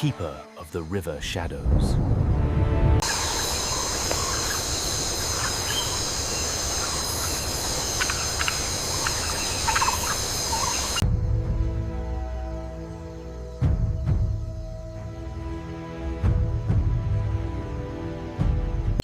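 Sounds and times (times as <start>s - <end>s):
bird or frog calls: 3.0s - 11.0s
high insect chorus: 3.0s - 18.8s.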